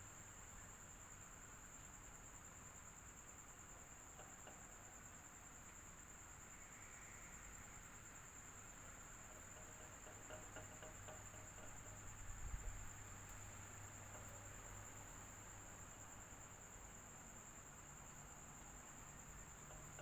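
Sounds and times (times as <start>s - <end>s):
electric fan hiss and whine: 0.0s - 20.0s.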